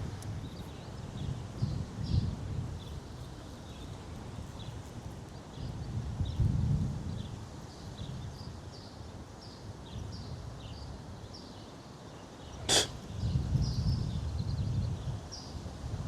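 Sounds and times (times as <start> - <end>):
wind buffeting microphone: 0.0 - 8.8, 12.6 - 16.0.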